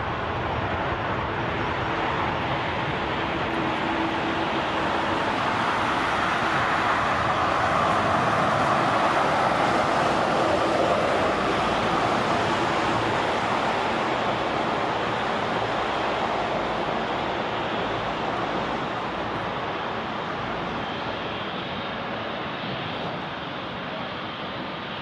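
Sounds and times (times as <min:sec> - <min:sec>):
jet airliner passing: 0:00.0 - 0:25.0.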